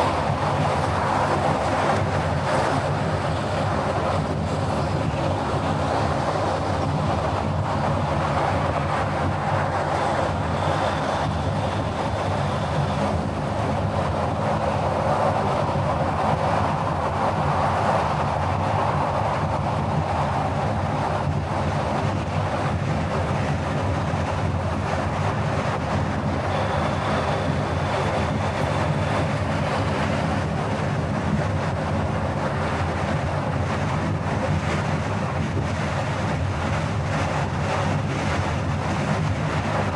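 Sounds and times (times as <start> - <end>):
road and wind noise: 0.0 - 39.9.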